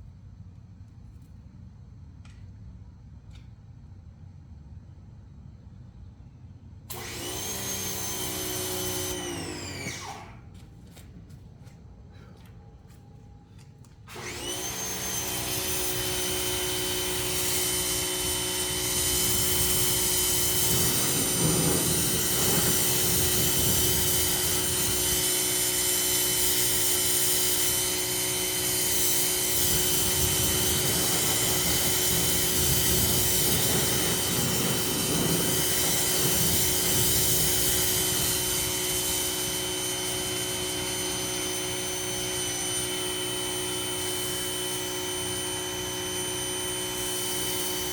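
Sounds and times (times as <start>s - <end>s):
power washer motor whine: 6.9s - 10.7s, 13.6s - 47.9s
water spray hissing: 15.1s - 47.9s.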